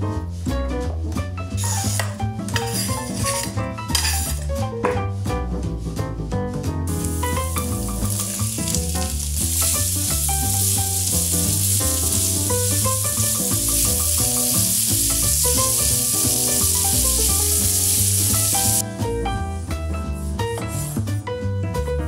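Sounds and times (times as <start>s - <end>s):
background music: 0.0s - 22.0s
vegetables sizzling in oil: 1.6s - 4.5s, 6.9s - 18.8s.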